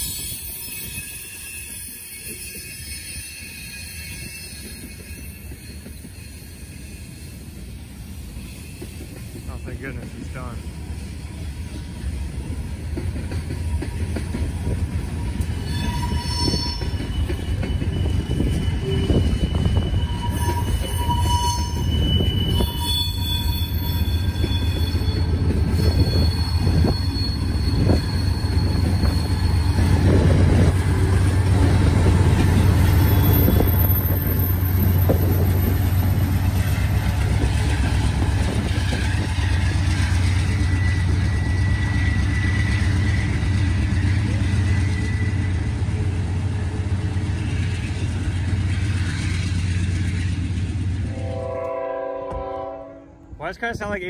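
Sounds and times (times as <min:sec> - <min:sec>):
wheel squeals: 0:00.0 - 0:09.8, 0:13.2 - 0:45.9
freight train rumbling past: 0:00.0 - 0:54.0.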